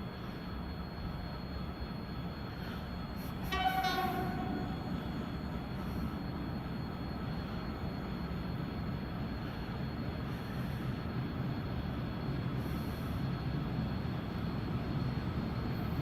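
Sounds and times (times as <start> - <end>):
train rumbling: 0.0 - 16.0
high-pitched train horn: 3.4 - 6.0.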